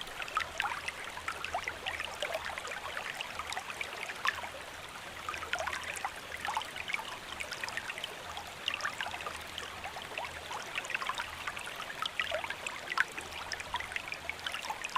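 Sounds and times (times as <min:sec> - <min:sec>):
rain patter: 0:00.0 - 0:14.9
water trickling: 0:00.0 - 0:14.9.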